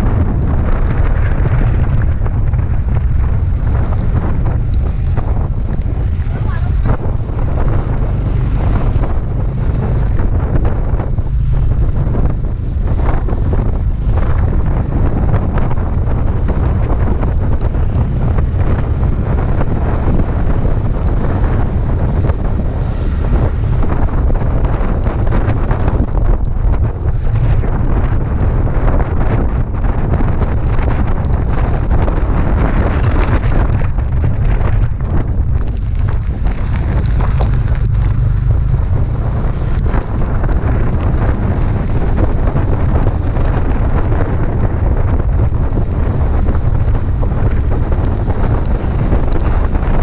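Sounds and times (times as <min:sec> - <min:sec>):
low road rumble: 0:00.0 - 0:50.0
wind buffeting microphone: 0:00.0 - 0:50.0
small knocks and clicks: 0:16.6 - 0:50.0.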